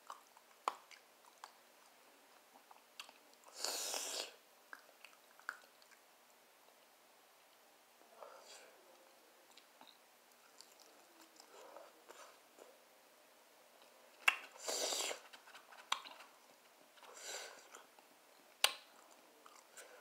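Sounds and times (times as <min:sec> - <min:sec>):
person chewing food: 0:00.0 - 0:06.1, 0:09.4 - 0:12.7, 0:13.8 - 0:20.0.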